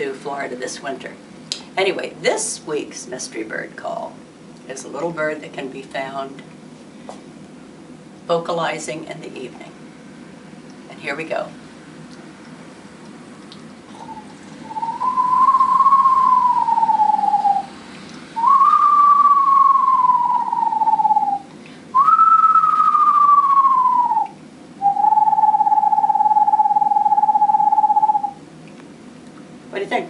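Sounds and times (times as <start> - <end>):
person whistling bird call: 13.9 - 17.7, 18.4 - 28.4.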